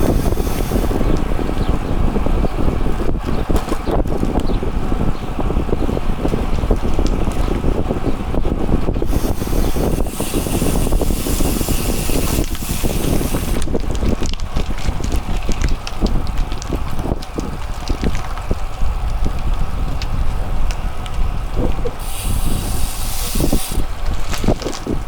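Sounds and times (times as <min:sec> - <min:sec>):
bright hiss: 0:00.0 - 0:01.1, 0:09.1 - 0:13.6, 0:22.0 - 0:23.9
bicycle riding rumble: 0:00.0 - 0:25.0
wind buffeting microphone: 0:00.0 - 0:25.0.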